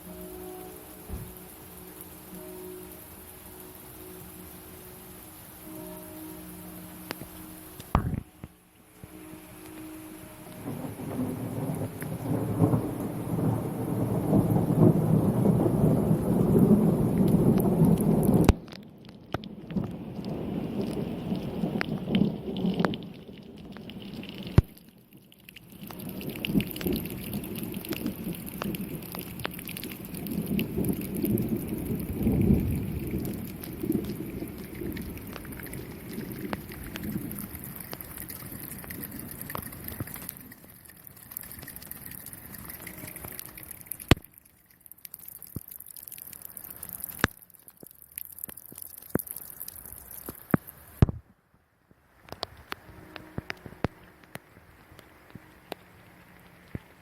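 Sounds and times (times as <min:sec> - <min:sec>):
heavy raindrops tapping: 0:00.0 - 0:51.2, 0:52.2 - 0:57.0
rain hiss: 0:00.0 - 0:57.0
thunder rumble: 0:05.7 - 0:24.6, 0:25.8 - 0:44.2.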